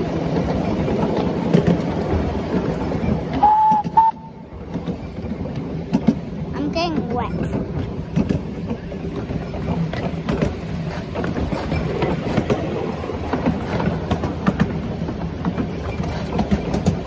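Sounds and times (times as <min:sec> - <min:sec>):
train rumbling: 0:00.0 - 0:17.0
wheels clattering over rails: 0:00.0 - 0:17.0.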